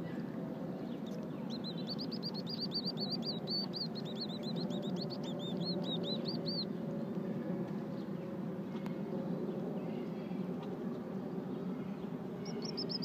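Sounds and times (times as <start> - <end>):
ducklings peeping: 1.0 - 6.7, 12.4 - 13.0.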